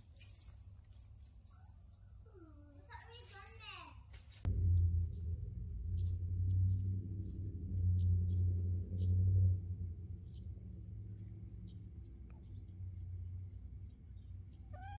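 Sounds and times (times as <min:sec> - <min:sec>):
birds chirping: 0:01.4 - 0:15.0
low steady hum: 0:04.4 - 0:14.8.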